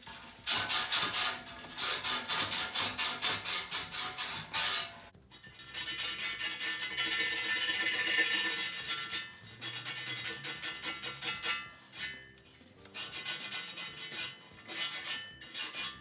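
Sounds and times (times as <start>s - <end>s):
hand sanding rasping strokes: 0.5s - 5.0s, 9.7s - 12.2s, 12.9s - 16.0s.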